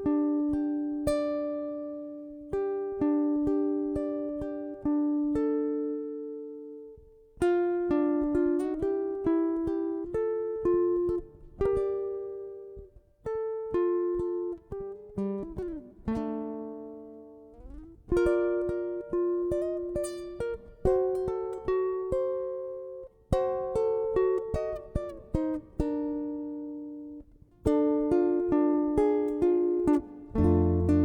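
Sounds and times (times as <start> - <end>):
guitar plucked notes and chords: 0.0 - 31.0
guitar string sliding in pitch: 30.4 - 31.0.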